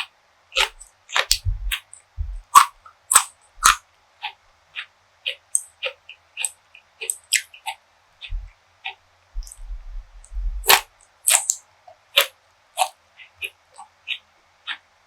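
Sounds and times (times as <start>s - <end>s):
crisp chewing of food: 0.0s - 4.4s, 5.3s - 14.8s
low thuds: 1.3s - 2.6s, 9.4s - 10.8s.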